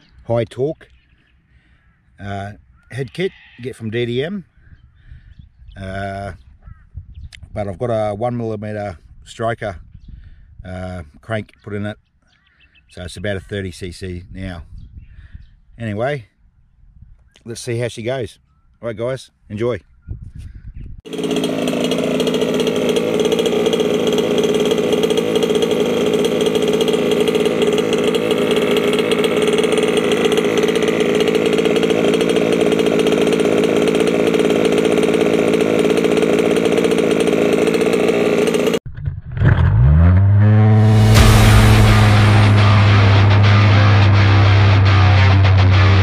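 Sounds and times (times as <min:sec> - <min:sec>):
two-stroke engine running: 0:21.1 - 0:38.8, 0:40.5 - 0:46.0
rock music: 0:40.8 - 0:46.0.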